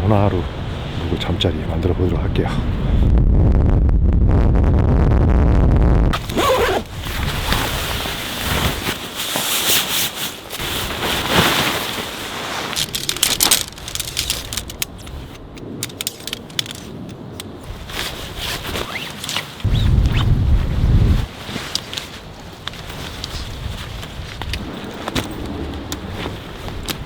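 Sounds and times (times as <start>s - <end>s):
tent fabric rustling and crinkling: 6.1s - 27.0s.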